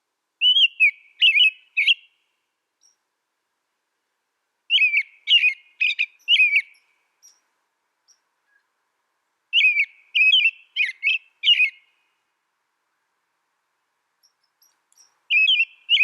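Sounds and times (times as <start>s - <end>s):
songbird whistling: 0.4s - 2.2s, 4.7s - 7.5s, 9.5s - 12.0s, 14.2s - 16.0s.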